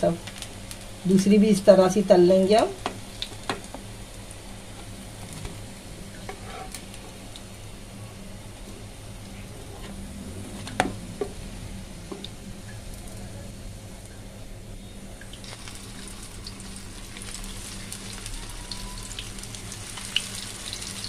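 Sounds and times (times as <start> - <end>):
patties sizzling in oil: 0.0 - 13.3, 14.8 - 21.0
low hum: 4.0 - 19.9
metal spatula scraping frying pan: 6.3 - 6.8.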